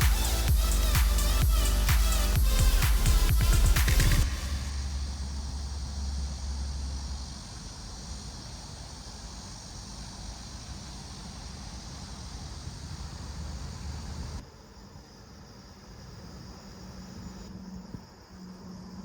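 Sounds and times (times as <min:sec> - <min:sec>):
insects chirping: 0:00.0 - 0:19.0
wind rumble on microphone: 0:03.4 - 0:14.4.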